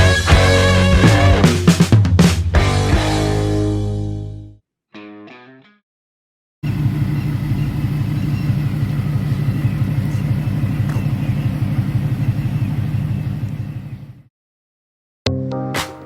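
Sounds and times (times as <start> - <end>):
car engine rumbling: 6.6 - 14.2.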